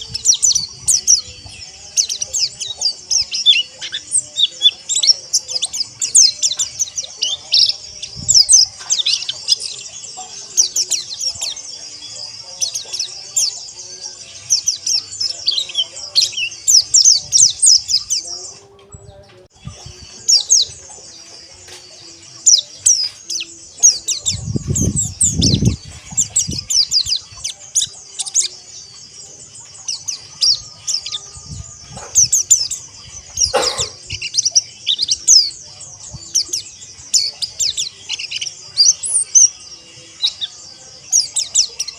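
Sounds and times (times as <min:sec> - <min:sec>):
birds chirping and twittering: 0:00.0 - 0:41.9.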